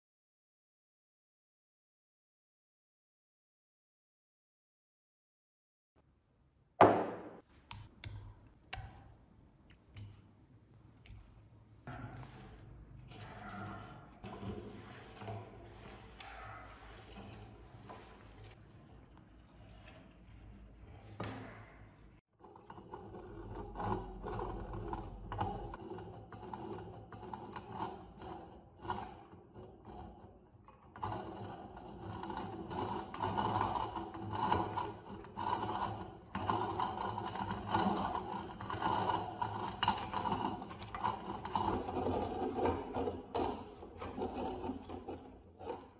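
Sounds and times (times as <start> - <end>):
meat grinder clicking and scraping: 22.4 - 45.9.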